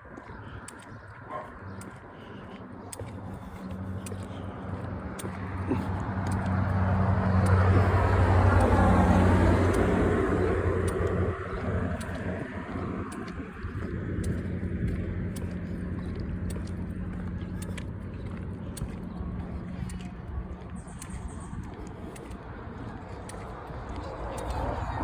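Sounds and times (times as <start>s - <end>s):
car driving past: 3.7s - 21.0s.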